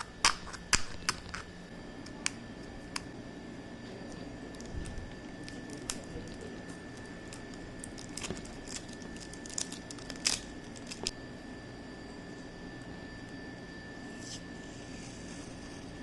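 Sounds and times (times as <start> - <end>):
tape packaging crinkling: 4.5 - 11.1.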